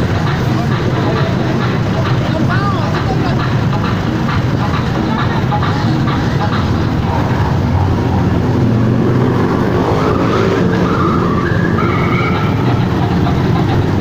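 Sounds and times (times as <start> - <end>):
motorcycles riding past: 4.9 - 14.0.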